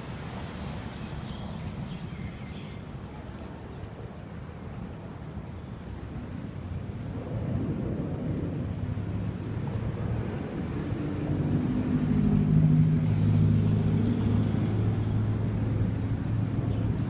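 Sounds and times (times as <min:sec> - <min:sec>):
steady low rumble: 0:05.8 - 0:17.0.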